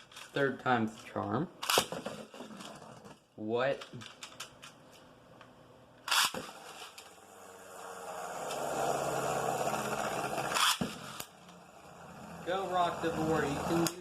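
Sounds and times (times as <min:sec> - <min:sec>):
spinning tops cracking together: 0:06.0 - 0:07.2, 0:09.8 - 0:11.6
spinning tops whirring and scraping: 0:06.0 - 0:14.0.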